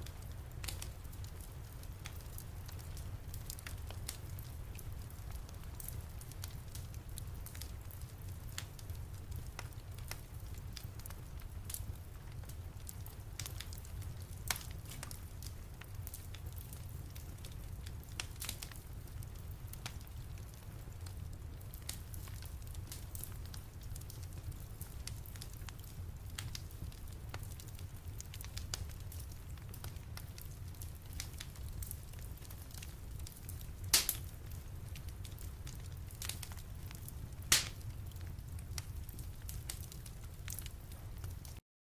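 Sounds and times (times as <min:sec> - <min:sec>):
low fire rumble: 0:00.0 - 0:41.6
wood fire crackling: 0:00.0 - 0:41.6
sharp pops and snaps: 0:33.9 - 0:34.3, 0:37.5 - 0:38.0.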